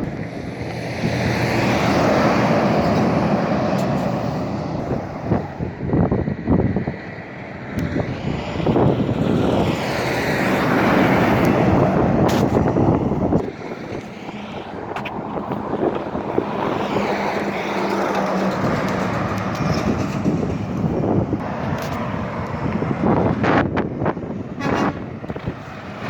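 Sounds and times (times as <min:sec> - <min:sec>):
vehicle engine hum approaching: 0:00.0 - 0:26.0
vehicle passing by: 0:00.2 - 0:26.0.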